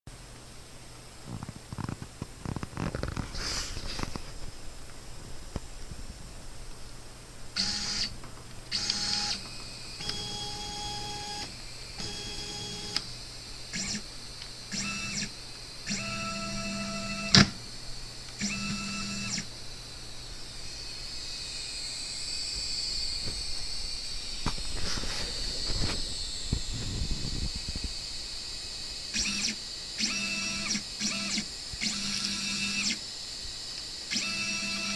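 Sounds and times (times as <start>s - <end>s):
stepper motors whining: 8.7s - 13.1s.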